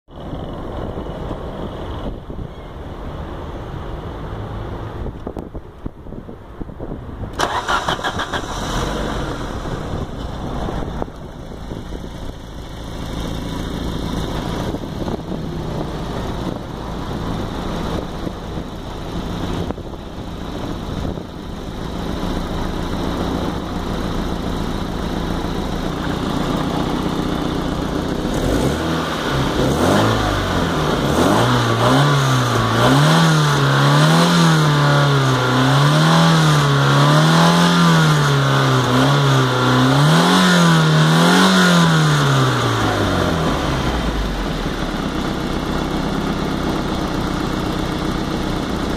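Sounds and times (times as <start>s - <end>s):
car engine starting and idling: 0.1s - 48.9s
engine revving in blips: 28.3s - 44.4s.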